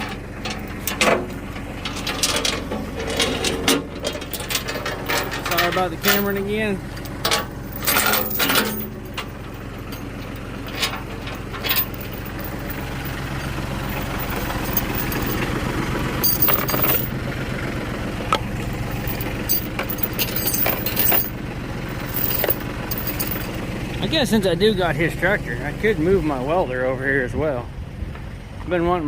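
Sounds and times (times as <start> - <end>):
sharp metal clinks and knocks: 0.0 - 13.2, 13.8 - 15.5, 16.2 - 17.2, 18.9 - 23.6
tractor engine idling: 0.0 - 29.0.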